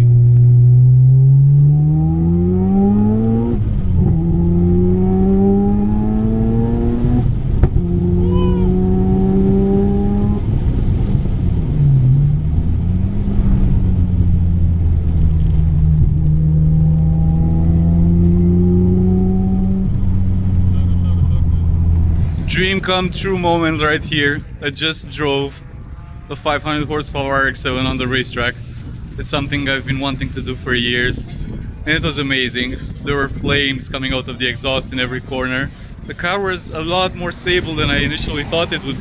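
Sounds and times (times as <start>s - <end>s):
rotary engine accelerating: 0.0s - 22.8s, 27.7s - 30.8s.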